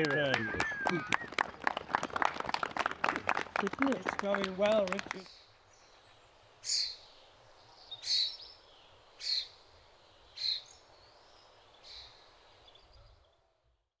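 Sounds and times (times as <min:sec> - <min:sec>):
faint background noise: 0:00.0 - 0:14.0
bird calling: 0:05.2 - 0:07.1, 0:07.9 - 0:08.6.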